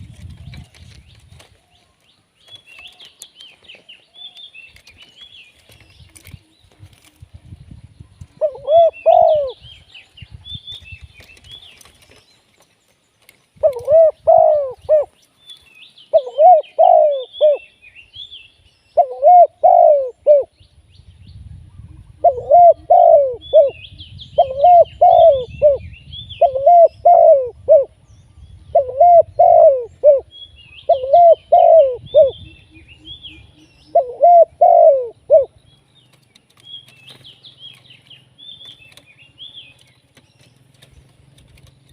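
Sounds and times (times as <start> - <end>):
small bird chirping: 0.0 - 41.9
dove cooing: 8.2 - 9.9, 13.6 - 15.2, 16.1 - 17.7, 19.0 - 20.6, 21.8 - 28.0, 28.7 - 35.6.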